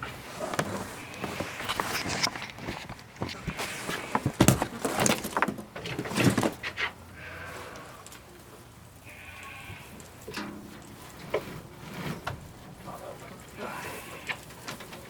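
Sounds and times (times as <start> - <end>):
footsteps: 0.0 - 6.7
goats and sheep bleating: 7.1 - 8.0, 9.0 - 10.0, 13.5 - 14.5.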